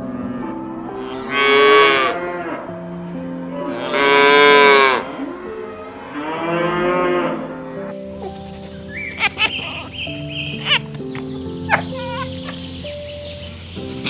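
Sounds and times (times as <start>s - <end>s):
cattle mooing: 0.0s - 2.7s, 3.5s - 7.9s.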